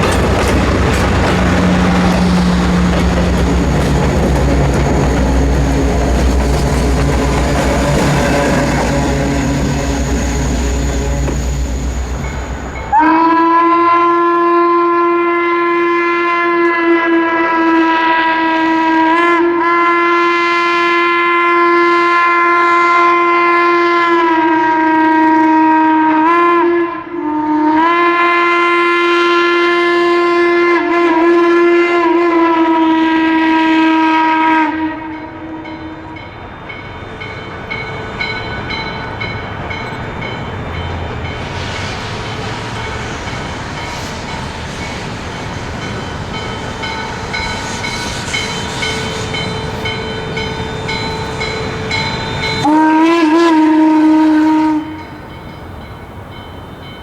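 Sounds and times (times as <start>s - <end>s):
train running: 0.0s - 26.3s, 28.0s - 57.0s
steam whistle blasts: 7.2s - 12.2s, 12.8s - 36.2s, 46.4s - 55.4s.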